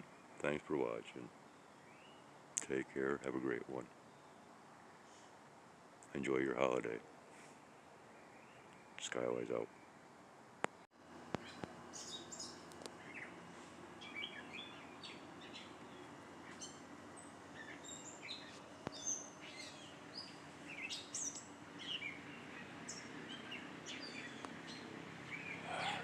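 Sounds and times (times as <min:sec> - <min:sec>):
faint low hum: 0:00.0 - 0:26.0
songbirds chirping: 0:00.0 - 0:26.0.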